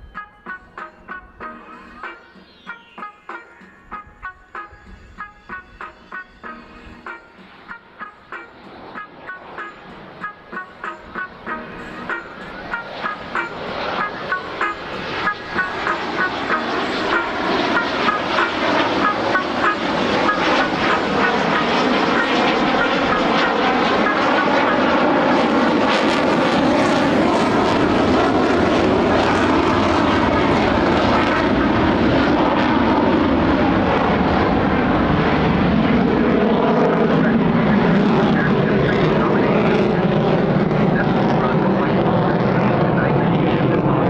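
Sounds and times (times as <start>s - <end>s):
jet engine roaring in flight: 0.0s - 44.0s.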